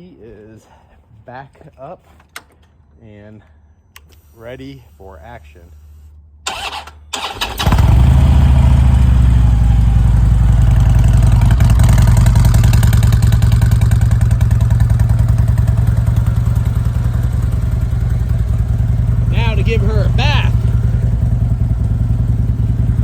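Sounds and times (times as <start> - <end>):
motorcycle engine starting and idling: 6.5 - 23.0.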